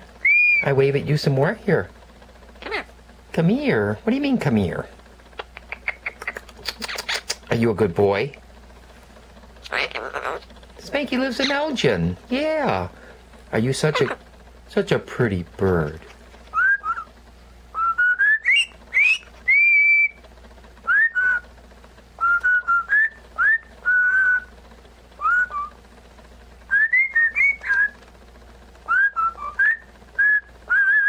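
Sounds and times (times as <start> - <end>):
parrot whistling: 0.2 - 0.8, 16.5 - 17.1, 17.7 - 20.2, 20.8 - 21.4, 22.2 - 24.5, 25.2 - 25.7, 26.7 - 28.0, 28.9 - 31.0.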